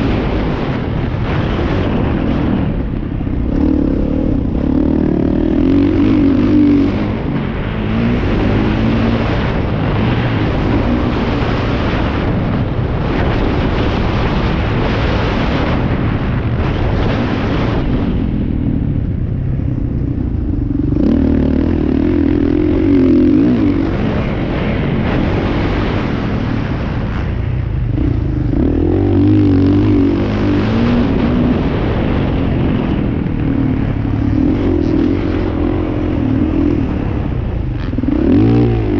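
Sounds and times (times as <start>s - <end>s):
motocross bike engines revving: 0.0s - 18.0s, 19.7s - 38.9s.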